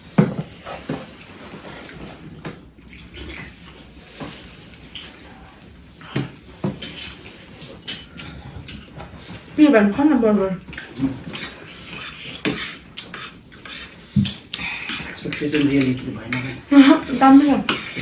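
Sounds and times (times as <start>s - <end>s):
chewing food: 1.8s - 9.6s, 10.6s - 18.0s
dishes and cutlery clinking: 2.9s - 4.4s, 10.7s - 18.0s.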